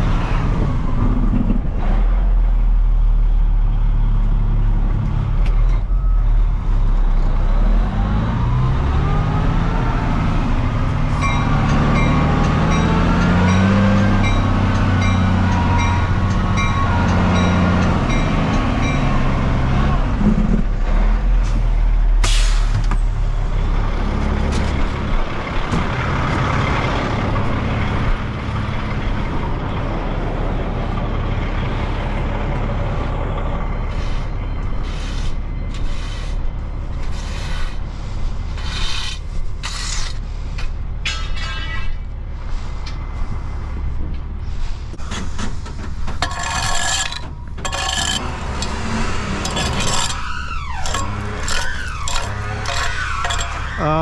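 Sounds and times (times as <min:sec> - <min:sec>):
heavy truck engine running: 0:00.0 - 0:38.6, 0:39.2 - 0:54.0
short knocks and scrapes: 0:44.9 - 0:53.7.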